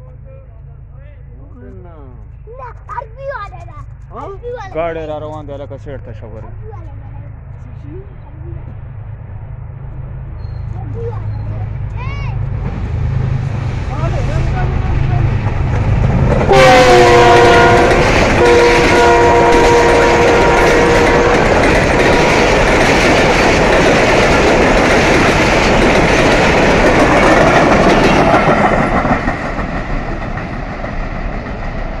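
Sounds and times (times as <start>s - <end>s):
train wheels clattering on rails: 10.4s - 32.0s
locomotive horn: 16.5s - 22.6s.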